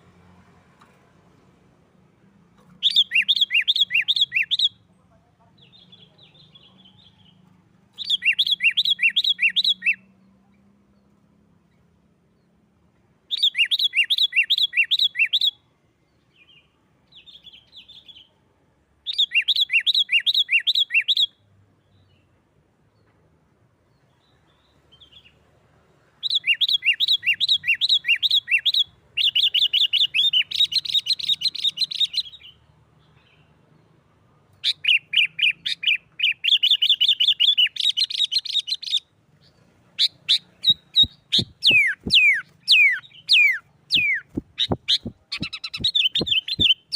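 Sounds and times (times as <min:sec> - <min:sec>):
bulbul fast repeated chirps: 0:40.0 - 0:46.9.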